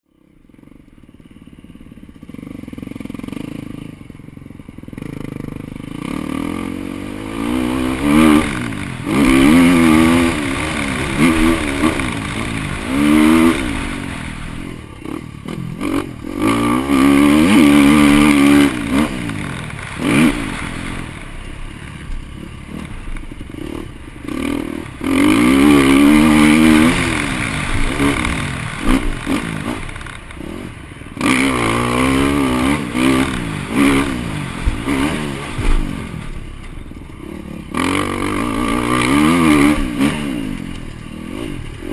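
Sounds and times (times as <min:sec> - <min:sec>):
motocross bike engine revving: 0:01.7 - 0:41.9.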